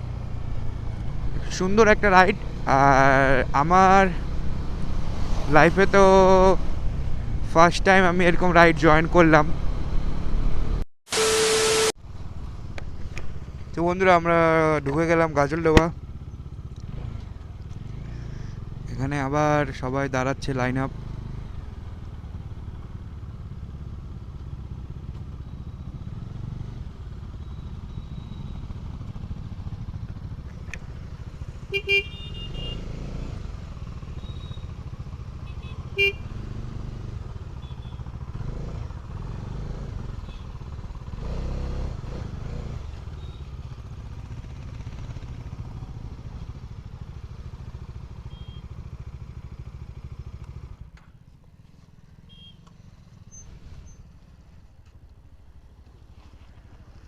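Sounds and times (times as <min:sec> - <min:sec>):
motorcycle engines rumbling: 0:00.0 - 0:10.8, 0:12.0 - 0:57.0
horn beeps: 0:11.1 - 0:12.0, 0:37.6 - 0:38.1, 0:43.1 - 0:43.6, 0:48.2 - 0:48.7, 0:52.2 - 0:52.7.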